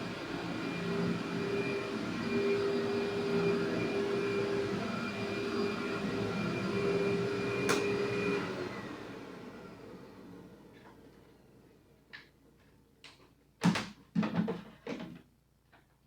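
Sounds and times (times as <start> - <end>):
vacuum cleaner motor whine: 0.0 - 11.8.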